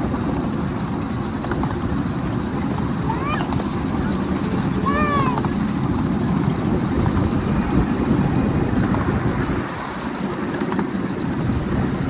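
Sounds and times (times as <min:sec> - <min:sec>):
miniature train rumbling on track: 0:00.0 - 0:12.0.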